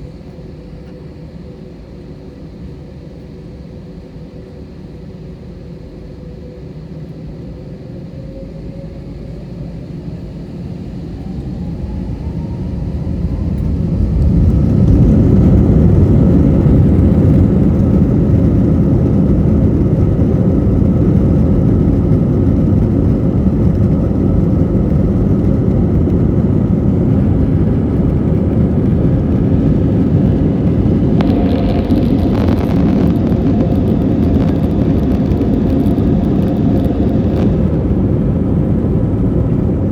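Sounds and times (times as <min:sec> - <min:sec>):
jet engines spooling up: 0:06.8 - 0:39.9
loud rumble of takeoff run: 0:08.5 - 0:39.9.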